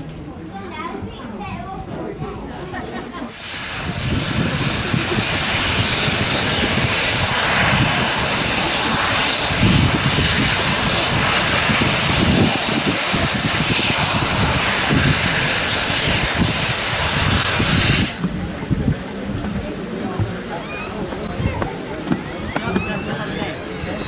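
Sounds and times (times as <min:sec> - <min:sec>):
steam locomotive hissing steam: 0:03.1 - 0:18.8, 0:22.5 - 0:24.0.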